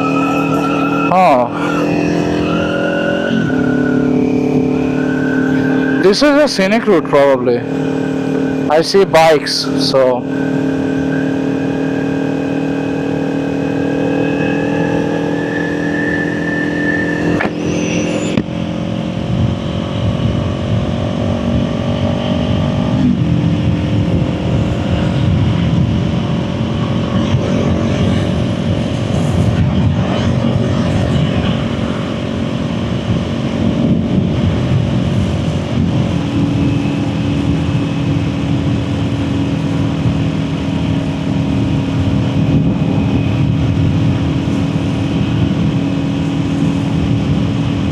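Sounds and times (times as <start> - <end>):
low wind rush: 0.0 - 47.9
motorcycle engine running: 17.4 - 47.9.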